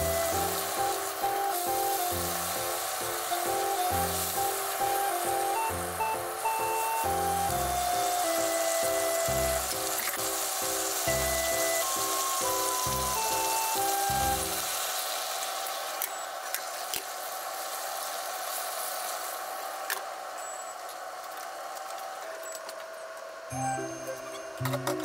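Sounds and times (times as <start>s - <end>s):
background music: 0.0s - 14.6s, 23.5s - 25.0s
peppers sizzling in a frying pan: 0.0s - 21.9s.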